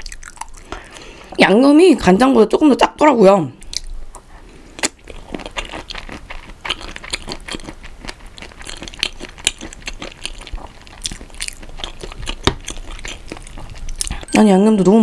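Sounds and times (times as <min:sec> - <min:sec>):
chewing wet smacks: 0:03.6 - 0:14.2.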